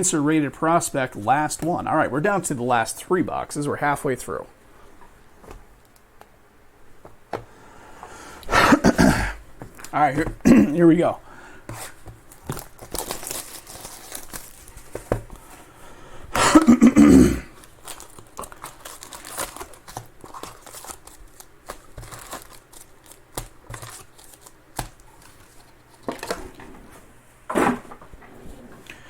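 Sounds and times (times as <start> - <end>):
foil wrappers tearing: 11.8 - 15.1, 17.6 - 25.6.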